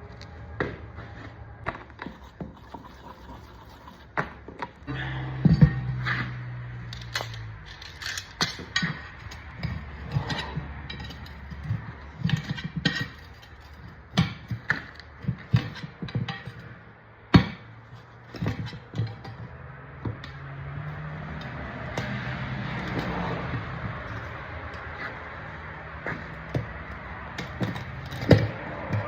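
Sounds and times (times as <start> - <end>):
metal tools clanking: 4.9 - 29.0.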